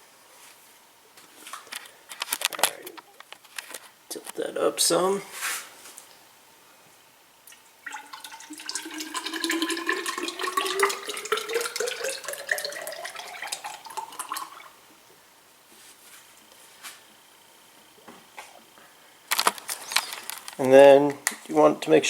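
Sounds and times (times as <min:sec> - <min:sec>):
oil pouring and gurgling: 0:07.8 - 0:14.8.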